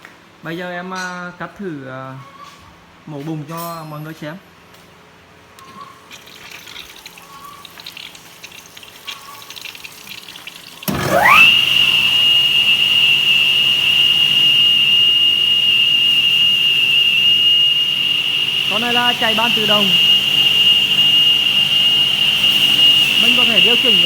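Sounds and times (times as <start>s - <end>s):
saw blade motor whine: 10.8s - 24.0s.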